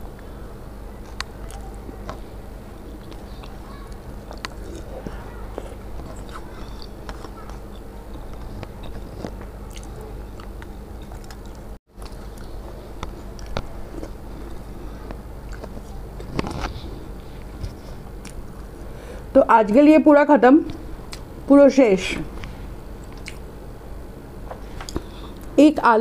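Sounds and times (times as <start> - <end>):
chewing and biting food: 1.0 - 18.7, 23.0 - 23.5.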